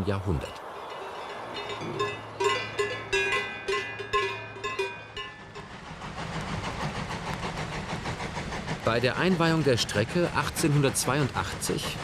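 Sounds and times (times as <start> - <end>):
metal bell clanging: 0.8 - 5.7.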